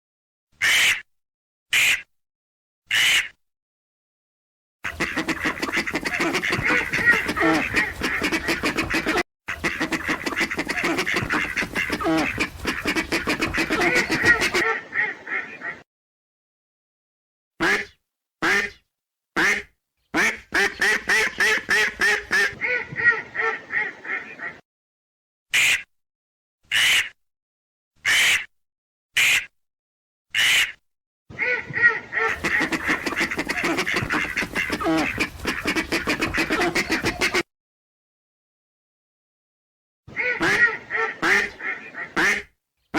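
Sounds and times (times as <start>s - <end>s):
ducks quacking: 4.9s - 15.8s, 19.4s - 24.6s, 31.4s - 37.4s, 40.1s - 42.5s.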